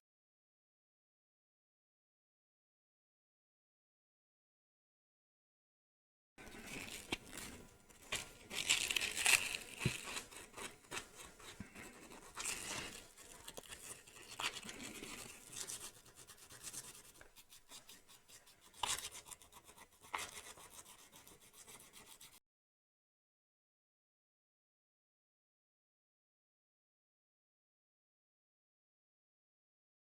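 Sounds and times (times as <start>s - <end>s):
sandpaper rasping on fingernail: 8.1s - 22.4s.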